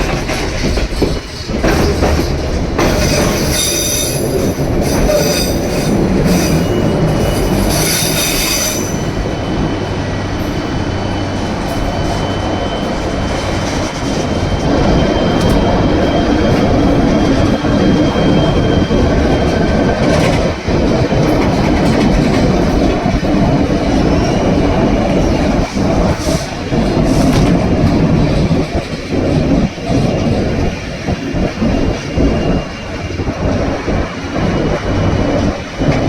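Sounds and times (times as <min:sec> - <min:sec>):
train rumbling on rails: 0:00.0 - 0:36.0
high wheel squeal: 0:02.8 - 0:20.0, 0:29.0 - 0:36.0.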